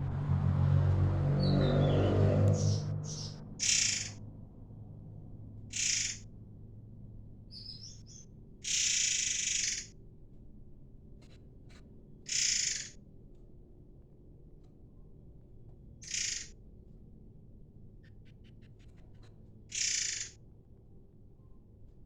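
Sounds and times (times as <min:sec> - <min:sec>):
songbird calling harshly: 0:02.6 - 0:04.2, 0:05.7 - 0:06.2, 0:07.5 - 0:09.9, 0:12.3 - 0:13.0, 0:16.0 - 0:16.5, 0:19.7 - 0:20.4.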